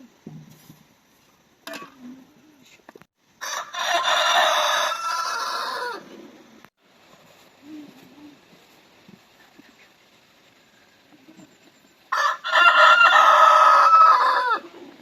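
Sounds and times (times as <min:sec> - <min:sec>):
rooster crowing: 0:03.4 - 0:06.1, 0:12.1 - 0:14.8.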